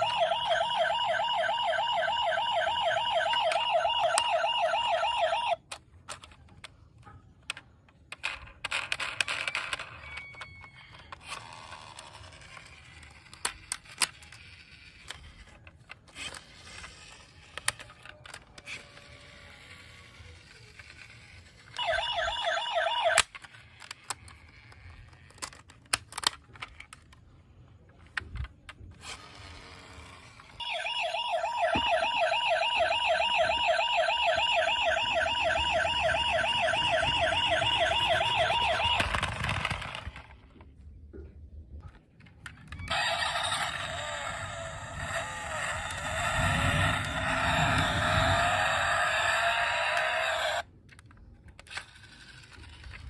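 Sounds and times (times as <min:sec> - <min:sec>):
electronic toy sound: 0:00.0 - 0:05.6, 0:18.8 - 0:23.4, 0:30.6 - 0:40.1, 0:42.9 - 0:50.6
toy siren warbling wail: 0:00.0 - 0:05.6, 0:18.3 - 0:23.4, 0:30.5 - 0:40.0, 0:42.7 - 0:50.7.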